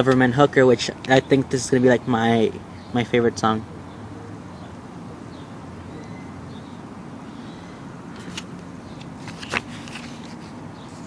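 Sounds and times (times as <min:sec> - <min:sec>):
low background noise: 0:00.0 - 0:11.0
booklet pages rustling: 0:08.2 - 0:11.0.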